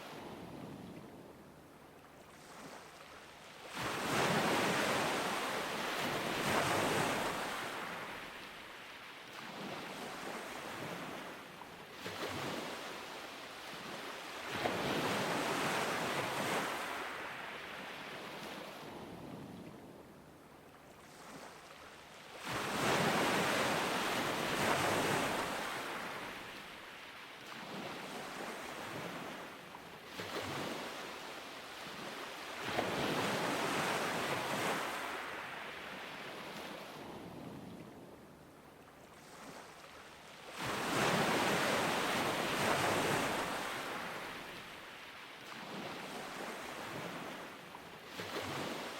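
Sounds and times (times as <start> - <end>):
ocean surf breaking on beach: 22.4 - 26.9, 30.2 - 37.6, 40.5 - 48.9.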